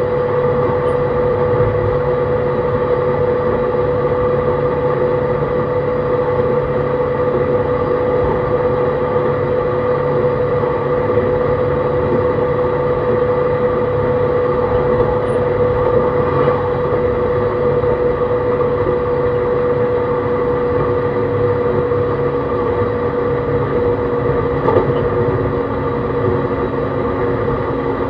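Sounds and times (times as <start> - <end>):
traction motor whine: 0.0 - 28.0
train wheels rumbling on rails: 10.2 - 19.2, 19.9 - 28.0.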